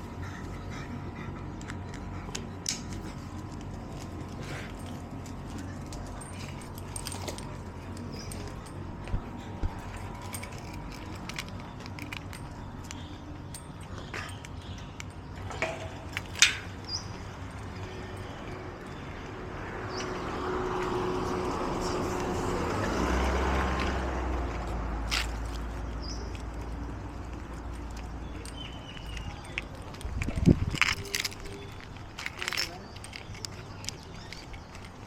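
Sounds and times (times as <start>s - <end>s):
light clicks and jingles: 0.2s - 20.2s, 20.8s - 35.0s
passing vehicle: 15.5s - 35.0s.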